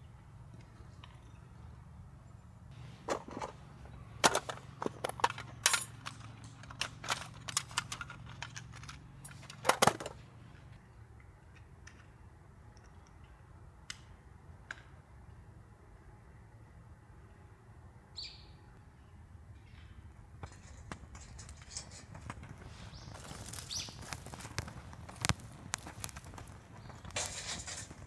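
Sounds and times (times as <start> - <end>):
dry wood cracking and snapping: 21.2 - 28.0
scattered ticks: 21.2 - 28.0.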